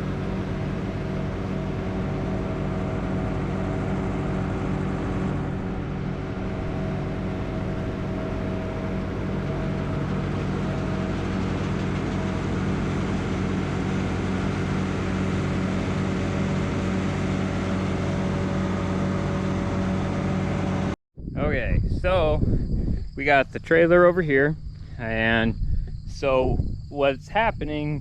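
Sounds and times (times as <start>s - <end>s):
farm machine engine running: 0.0s - 21.0s.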